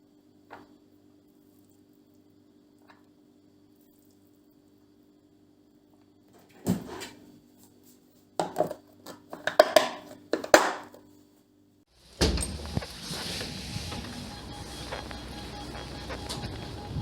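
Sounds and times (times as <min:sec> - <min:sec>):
household objects knocking and clattering: 0:08.4 - 0:10.9.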